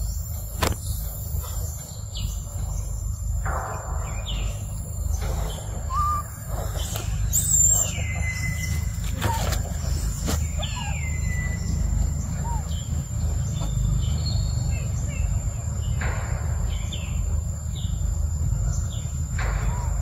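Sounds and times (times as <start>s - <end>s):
whistled bird calls: 4.0s - 15.5s.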